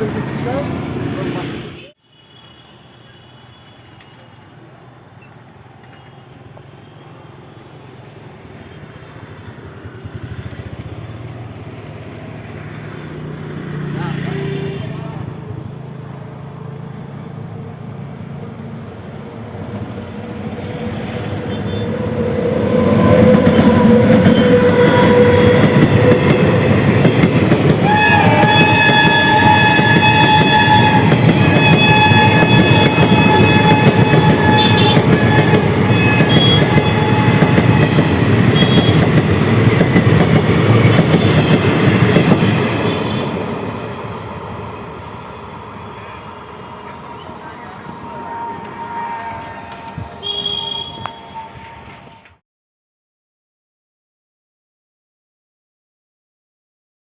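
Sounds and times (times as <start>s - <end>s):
train rumbling past: 0.0s - 2.0s, 4.8s - 52.4s
train horn: 21.1s - 27.0s, 27.7s - 40.0s, 42.2s - 43.6s, 45.8s - 52.4s.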